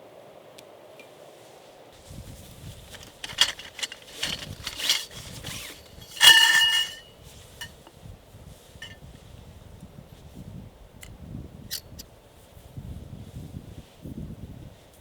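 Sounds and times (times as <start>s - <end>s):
metal objects clinking and scraping: 2.9s - 7.8s
ringing metallic clink: 3.0s - 7.8s.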